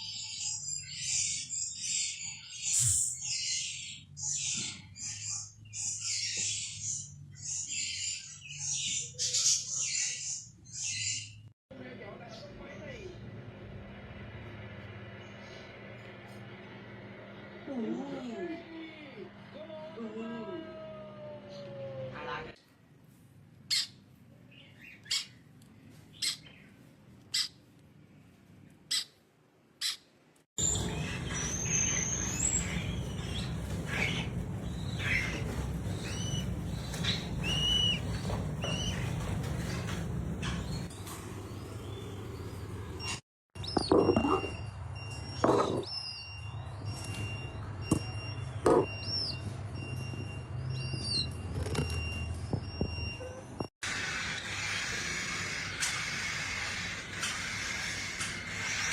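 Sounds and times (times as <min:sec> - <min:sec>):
bird chirps: 0:00.0 - 0:11.5, 0:30.6 - 0:51.4
parrot squawking: 0:30.6 - 0:40.9, 0:53.8 - 0:58.9
steady background noise: 0:30.6 - 0:43.1
steady low hum: 0:30.6 - 0:43.2.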